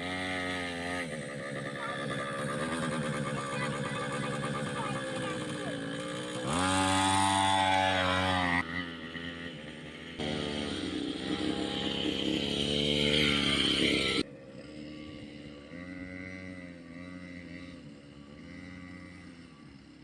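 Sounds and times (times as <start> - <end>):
small motorbike engine revving: 0.0 - 20.0.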